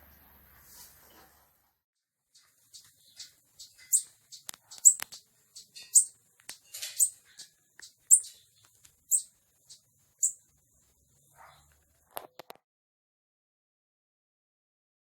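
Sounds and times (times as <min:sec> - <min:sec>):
bird chirping: 0:02.4 - 0:11.8.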